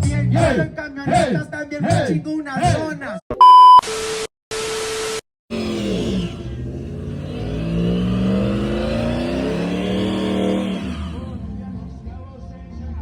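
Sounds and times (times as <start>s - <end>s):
truck engine revving: 5.5s - 13.0s.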